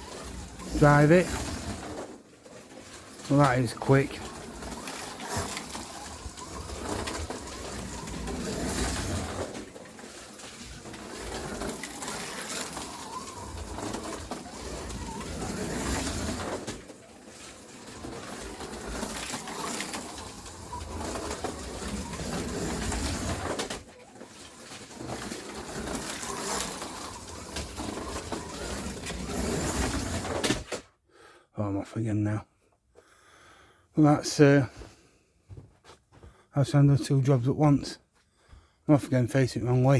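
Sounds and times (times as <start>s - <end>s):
slot car motor and tyres: 0.0s - 30.7s.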